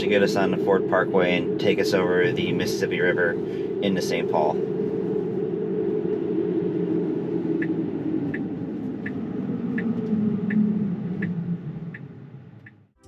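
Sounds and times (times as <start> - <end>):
turn signal ticking: 7.6 - 13.0.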